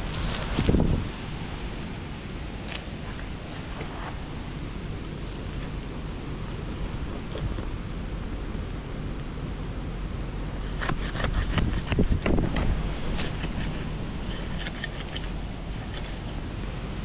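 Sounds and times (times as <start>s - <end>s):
soil scraping and crunching: 0.0s - 1.1s, 1.7s - 8.0s, 10.6s - 12.4s, 13.1s - 17.0s
wind rumbling on microphone: 0.0s - 17.0s.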